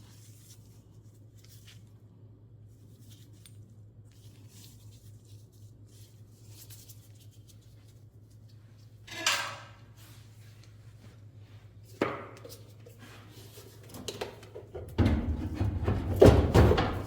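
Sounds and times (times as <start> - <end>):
heavy thumps: 14.8 - 17.0.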